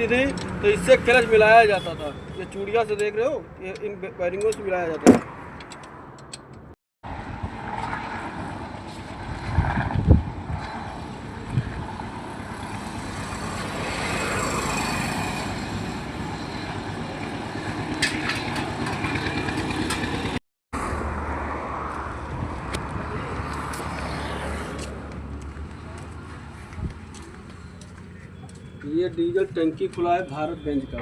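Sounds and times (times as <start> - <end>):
motor vehicle noise: 0.0 - 31.0
sharp knocks: 5.0 - 5.3.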